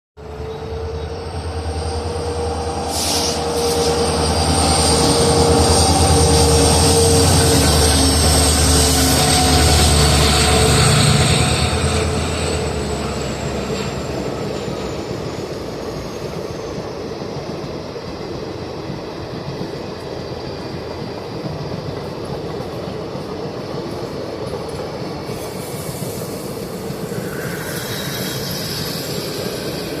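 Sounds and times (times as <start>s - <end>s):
locomotive engine working hard: 0.2s - 15.3s
train coaches rolling on rails: 0.2s - 30.0s.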